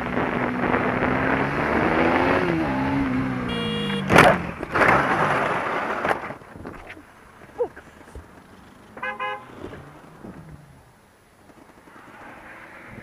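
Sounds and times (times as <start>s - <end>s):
motorcycle engine revving: 0.0s - 5.9s, 8.0s - 13.0s
horn blaring: 3.4s - 4.2s, 9.0s - 9.6s.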